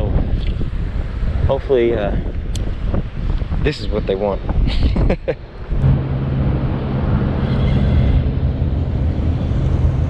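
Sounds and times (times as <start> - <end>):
wind buffeting microphone: 0.0 - 10.0
steady low hum: 5.4 - 10.0.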